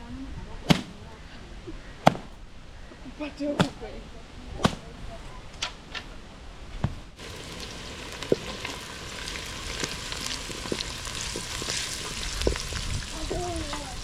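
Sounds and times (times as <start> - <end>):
food sizzling in a pot: 7.2 - 14.0.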